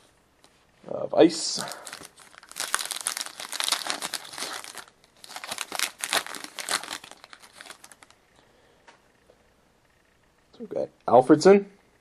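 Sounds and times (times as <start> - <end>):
wrapper tearing and crinkling: 1.6 - 8.2.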